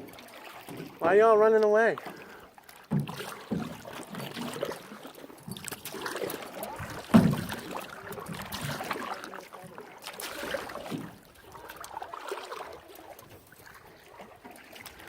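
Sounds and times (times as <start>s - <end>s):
water splashing around paddles: 0.0s - 15.0s
paddle knocks: 2.8s - 11.2s.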